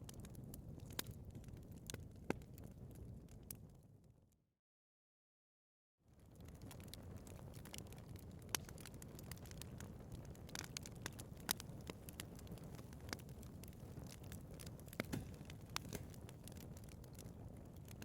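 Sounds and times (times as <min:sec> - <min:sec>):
wood fire crackling: 0:00.0 - 0:03.8, 0:06.1 - 0:18.0.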